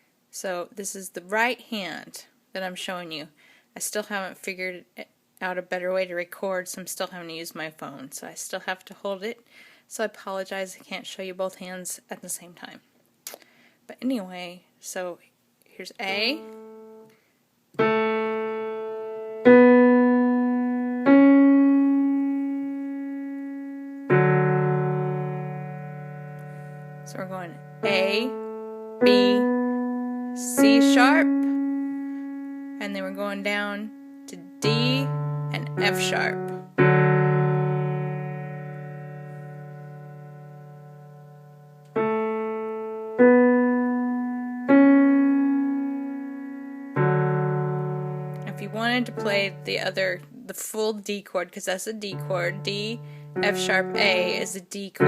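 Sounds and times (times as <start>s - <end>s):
piano notes: 16.1s - 17.1s, 17.8s - 50.3s, 52.1s - 55.0s.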